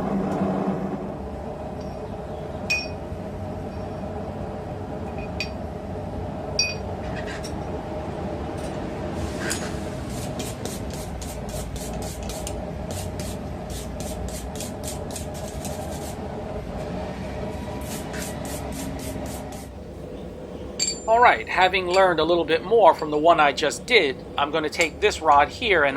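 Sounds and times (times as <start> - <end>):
light metal clinks: 20.8 - 22.2.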